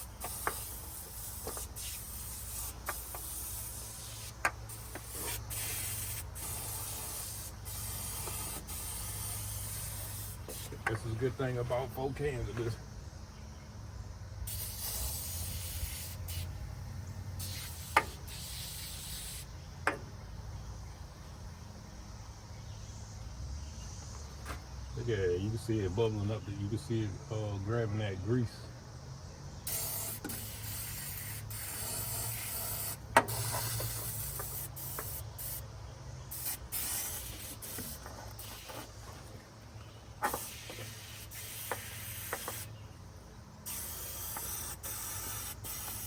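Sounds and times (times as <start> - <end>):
aerosol can spraying: 0.0 - 10.9, 14.5 - 16.5, 17.4 - 19.5, 29.7 - 35.6, 36.3 - 38.9, 40.2 - 42.7, 43.6 - 46.0.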